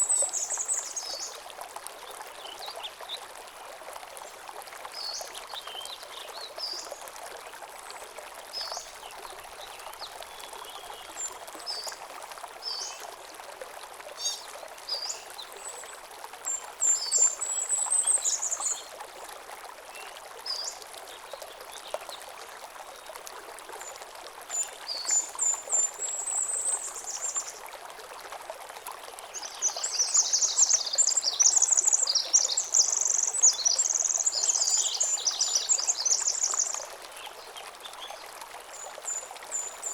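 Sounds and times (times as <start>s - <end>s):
stream running over stones: 0.0s - 39.9s
songbirds chirping and trilling: 29.3s - 37.4s
bird singing rapidly: 29.4s - 36.9s.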